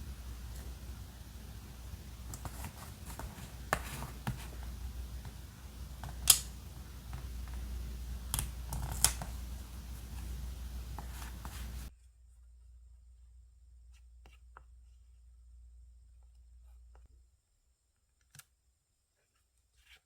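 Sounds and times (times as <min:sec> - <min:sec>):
low steady hum: 0:00.0 - 0:17.4
paper snips and taps: 0:00.1 - 0:11.9.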